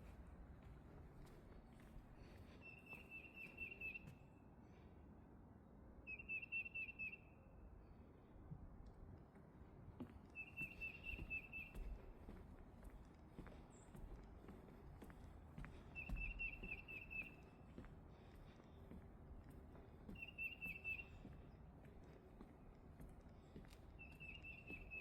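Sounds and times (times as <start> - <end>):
songbird whistled notes: 2.7 - 4.0, 6.1 - 7.3, 16.0 - 17.4, 20.2 - 21.2, 24.0 - 25.0.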